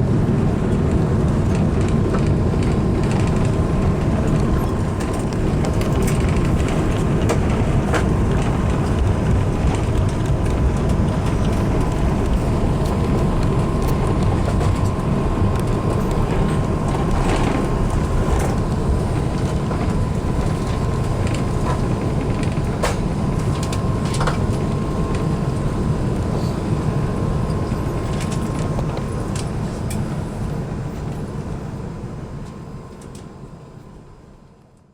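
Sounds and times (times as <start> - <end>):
aircraft cabin rumble: 0.0 - 34.2
faint steady whine: 0.0 - 34.9
light rattles and clicks: 0.8 - 26.7.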